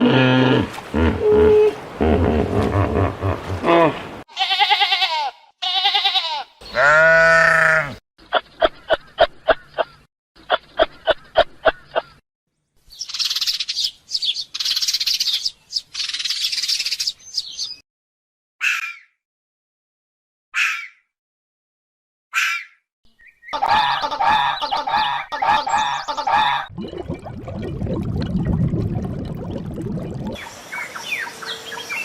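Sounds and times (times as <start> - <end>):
animal bleating calls: 4.3 - 8.0
high bird chirping: 12.9 - 17.8.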